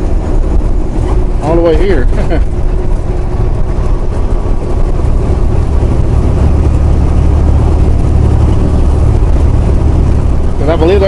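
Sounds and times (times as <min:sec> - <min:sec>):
diesel truck engine drone: 0:00.0 - 0:11.0
road rumble: 0:00.0 - 0:11.0.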